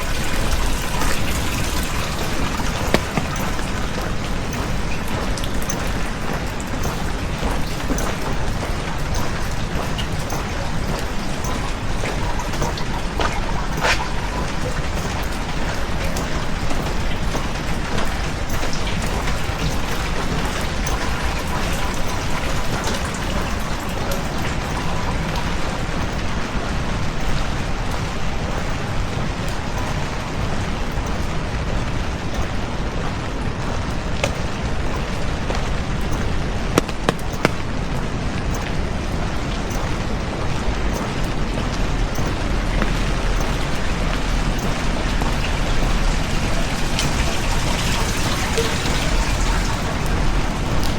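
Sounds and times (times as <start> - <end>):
heavy rain falling: 0.0 - 50.9
rain drop taps: 0.0 - 50.9.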